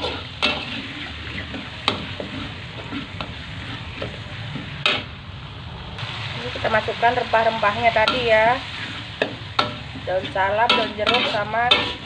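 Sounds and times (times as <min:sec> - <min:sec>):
spatula scraping and knocking pan: 0:00.0 - 0:05.1, 0:08.0 - 0:12.0
paste sizzling in oil: 0:00.0 - 0:05.2, 0:06.0 - 0:12.0.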